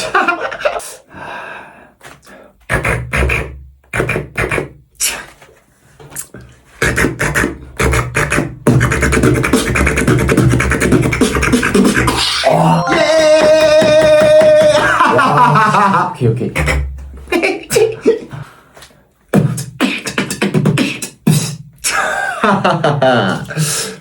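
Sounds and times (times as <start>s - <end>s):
person beatboxing: 2.6s - 5.5s, 6.1s - 15.6s, 16.4s - 18.4s, 19.3s - 22.0s.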